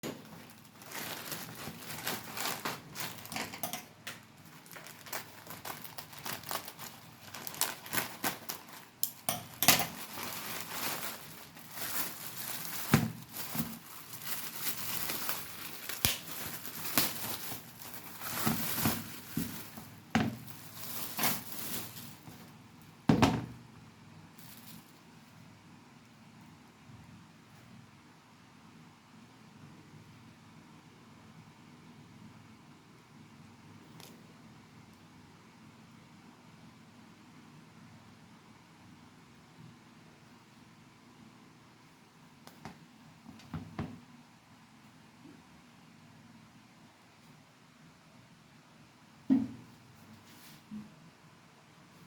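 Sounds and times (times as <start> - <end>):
plastic packaging crinkling and ripping: 0.0 - 22.6, 24.4 - 25.0.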